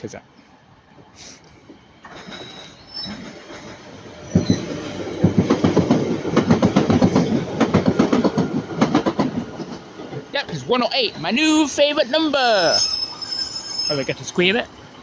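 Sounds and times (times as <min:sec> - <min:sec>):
train wheels clattering over rail joints: 0:01.6 - 0:10.3
faint wheel squeal: 0:02.1 - 0:03.2, 0:12.5 - 0:14.6.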